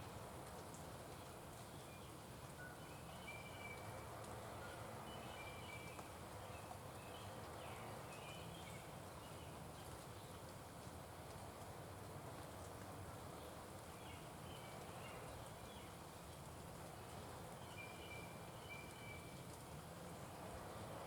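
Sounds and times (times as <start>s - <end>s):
outdoor background hiss: 0.0s - 21.0s.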